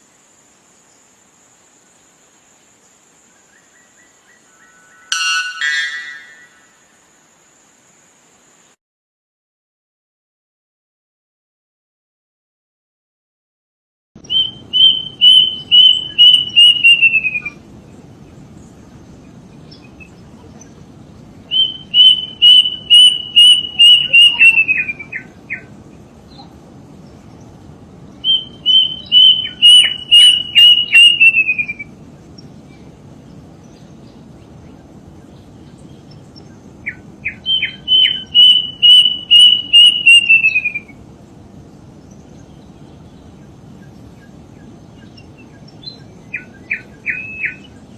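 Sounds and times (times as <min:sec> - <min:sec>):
bird of paradise calling: 0:03.3 - 0:07.1, 0:14.2 - 0:47.9.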